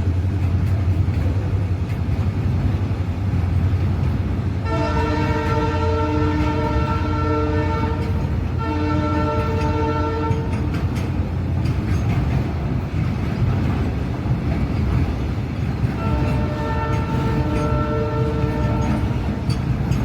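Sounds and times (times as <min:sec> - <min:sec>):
train rumble and rail clatter: 0:00.0 - 0:20.0
locomotive horn blasts: 0:04.6 - 0:10.8, 0:16.0 - 0:19.5.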